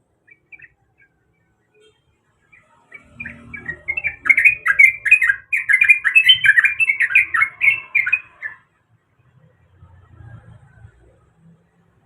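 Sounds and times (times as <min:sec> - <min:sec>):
bird singing bubbly chattering notes: 0:02.9 - 0:08.6.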